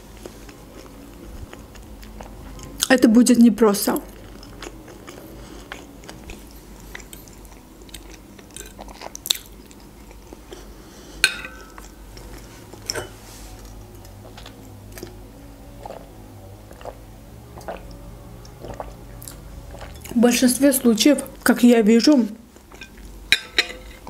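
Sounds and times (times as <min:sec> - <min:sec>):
person chewing food: 0:00.0 - 0:02.9, 0:04.0 - 0:20.2
fork clinking on a plate: 0:12.8 - 0:13.2, 0:22.8 - 0:24.0.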